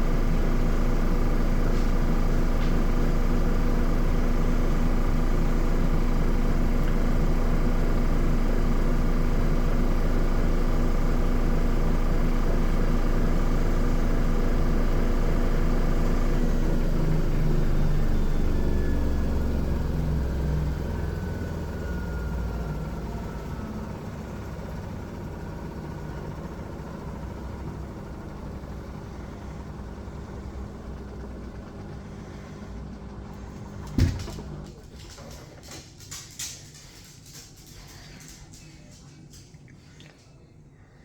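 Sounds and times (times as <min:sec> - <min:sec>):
washing machine winding down: 0:00.0 - 0:36.0
washing machine thump: 0:33.9 - 0:34.6.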